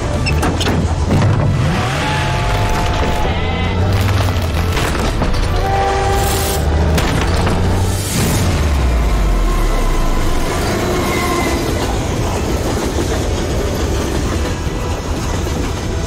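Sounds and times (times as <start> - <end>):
train wheels running on rails: 4.4 - 16.0.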